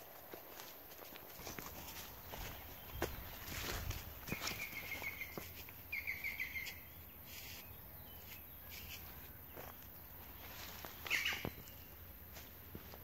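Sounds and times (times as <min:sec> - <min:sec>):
footsteps on woodland trail: 0:00.0 - 0:13.0
bird chirping: 0:02.2 - 0:12.1.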